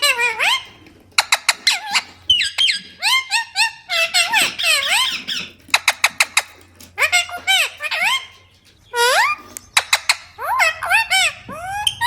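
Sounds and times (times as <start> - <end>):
parrots calling: 0.0 - 12.0.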